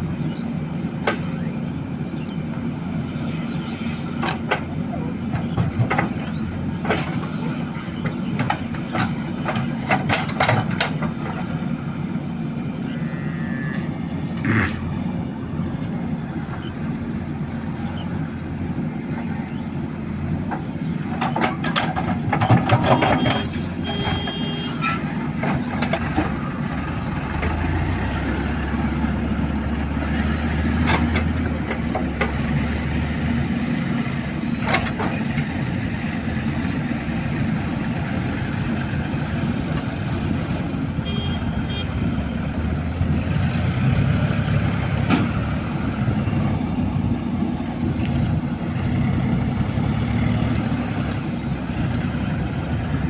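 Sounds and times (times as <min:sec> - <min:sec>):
diesel engines running: 0:00.0 - 0:53.0
machinery clanks and knocks: 0:04.1 - 0:11.6, 0:20.4 - 0:27.8, 0:30.7 - 0:32.8, 0:34.0 - 0:35.8.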